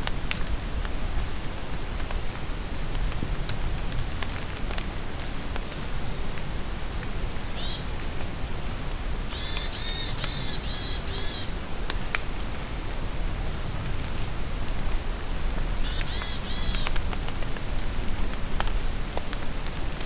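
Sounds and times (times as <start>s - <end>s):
steady rain falling: 0.0s - 20.0s
loud harsh bird calls: 7.6s - 7.9s, 9.3s - 11.6s, 15.8s - 16.9s.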